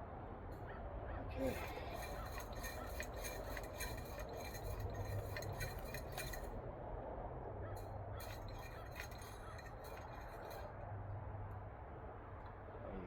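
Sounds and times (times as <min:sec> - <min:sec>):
small metal parts clicking: 0:01.7 - 0:06.5, 0:08.2 - 0:10.6.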